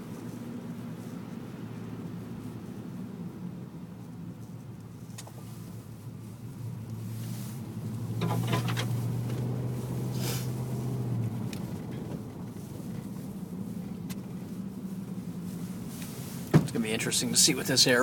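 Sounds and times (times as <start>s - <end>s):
car engine hum: 0.0s - 18.0s
road noise: 0.0s - 18.0s
brief hiss: 10.1s - 10.6s.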